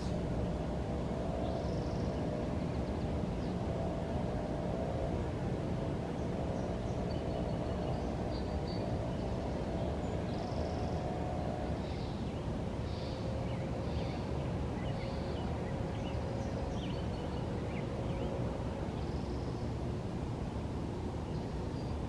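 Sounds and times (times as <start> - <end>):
faint steady hum: 0.0 - 22.0
steady low rumble: 0.0 - 22.0
small birds chirping: 11.8 - 19.8.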